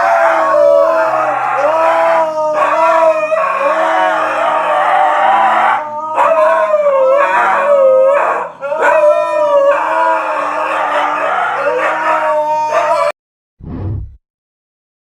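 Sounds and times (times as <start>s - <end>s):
dog howling: 0.0s - 13.2s.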